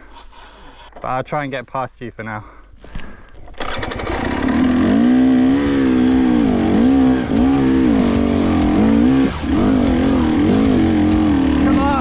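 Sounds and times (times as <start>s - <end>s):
motorcycle engine revving hard: 3.6s - 12.0s.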